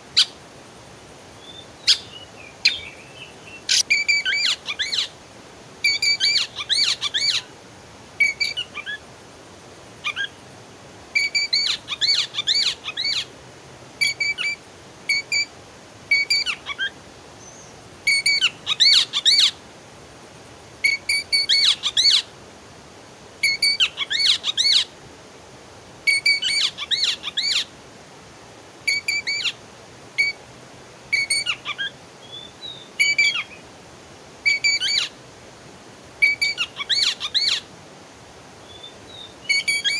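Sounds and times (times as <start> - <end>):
songbird singing: 1.4 - 5.2, 5.8 - 7.5, 8.2 - 9.0, 10.0 - 10.4, 11.2 - 13.3, 14.0 - 15.5, 16.1 - 19.6, 20.8 - 22.3, 23.4 - 24.9, 26.1 - 27.7, 28.9 - 29.6, 30.2 - 30.5, 31.1 - 33.7, 34.4 - 35.2, 36.2 - 37.7, 38.6 - 39.9.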